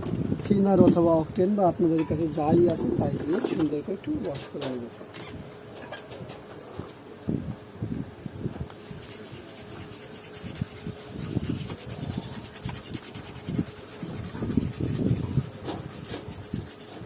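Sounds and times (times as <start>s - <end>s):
scrubbing a circuit board: 8.7s - 17.0s.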